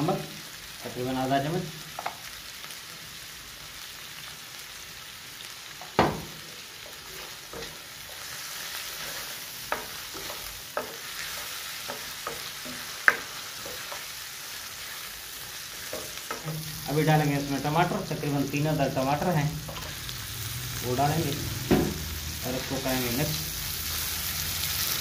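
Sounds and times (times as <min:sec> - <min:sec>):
food sizzling in hot oil: 0:00.0 - 0:25.0
spatula scraping and knocking pan: 0:05.9 - 0:14.2, 0:15.6 - 0:18.0.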